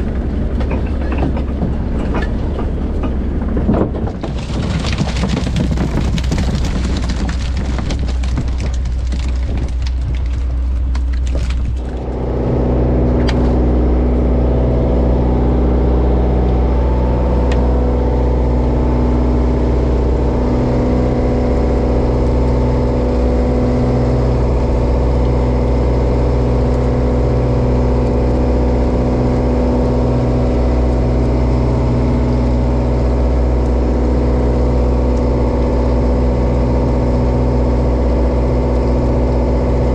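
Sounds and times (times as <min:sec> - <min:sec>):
dense clattering knocks: 0:00.0 - 0:12.1
boat diesel engine running: 0:00.0 - 0:39.9.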